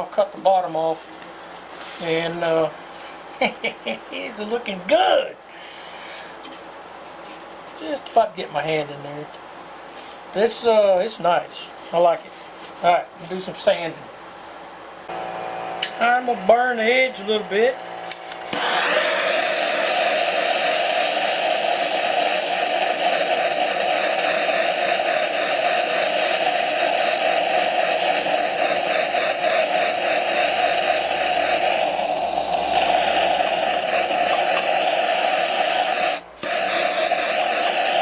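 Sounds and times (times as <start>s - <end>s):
propane torch roaring hiss: 1.7s - 6.5s, 15.0s - 38.0s.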